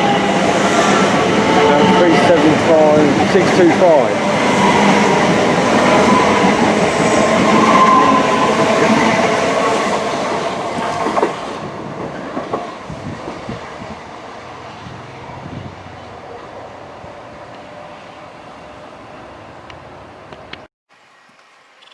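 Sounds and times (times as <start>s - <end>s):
passenger train passing: 0.0s - 20.7s
train wheel clack: 10.7s - 13.4s.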